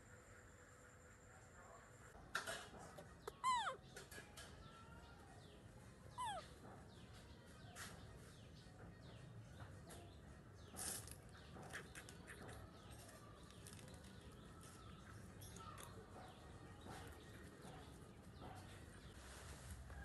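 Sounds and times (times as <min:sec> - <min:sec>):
faint bird chirps: 0:03.2 - 0:11.0.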